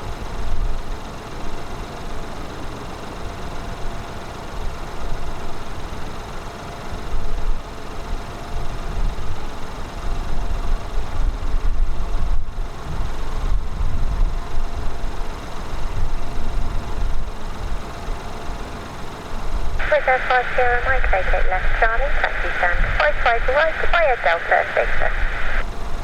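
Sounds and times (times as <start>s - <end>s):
faint steady whine: 14.3s - 26.0s
jet engines rumbling: 19.8s - 26.0s.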